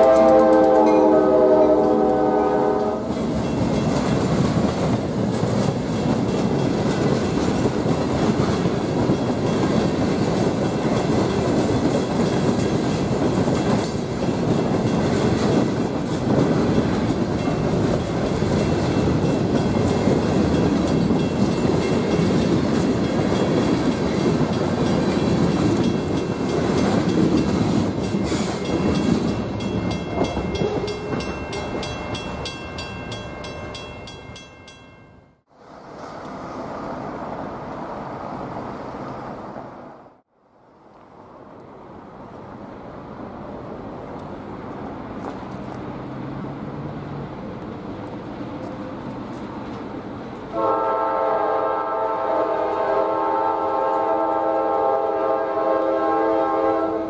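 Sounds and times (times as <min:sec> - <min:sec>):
steel wheels clacking on rail: 0:00.0 - 0:35.1
locomotive tones: 0:00.0 - 0:35.2
freight cars rolling past: 0:00.0 - 0:40.2, 0:40.8 - 0:51.0.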